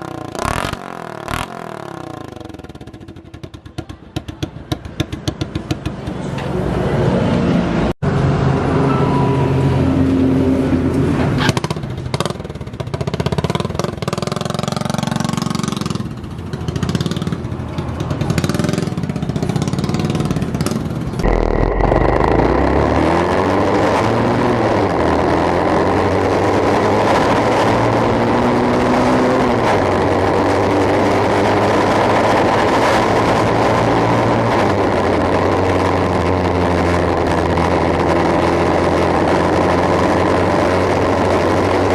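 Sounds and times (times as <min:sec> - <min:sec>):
motorcycle engine revving: 0:00.0 - 0:05.8, 0:18.2 - 0:41.9.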